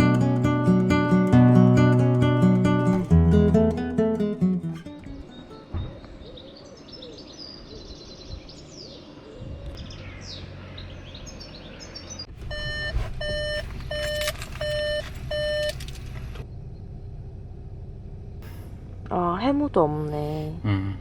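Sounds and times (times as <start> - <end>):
birds chirping: 3.6 - 14.1
steady low rumble: 12.3 - 21.0
electronic beeper beeping: 12.5 - 15.8.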